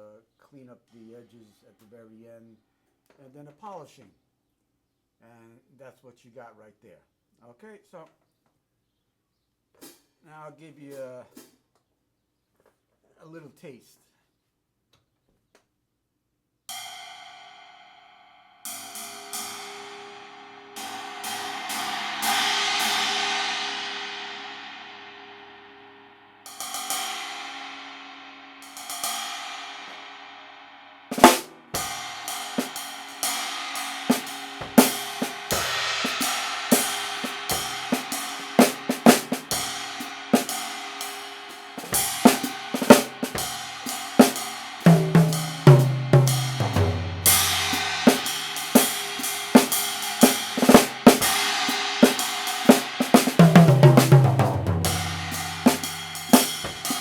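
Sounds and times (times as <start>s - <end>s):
cymbal crashes ringing: 17.9s - 57.0s
drum kit groove: 31.1s - 57.0s.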